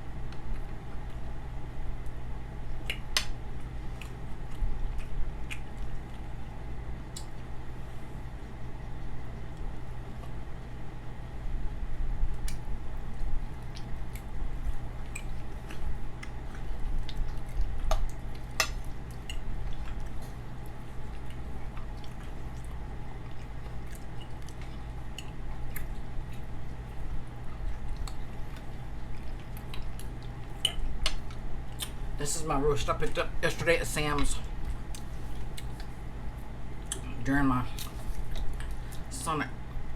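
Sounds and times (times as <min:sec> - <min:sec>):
wet chewing: 0:02.0 - 0:06.4, 0:12.4 - 0:32.2, 0:34.3 - 0:37.1, 0:37.7 - 0:39.1.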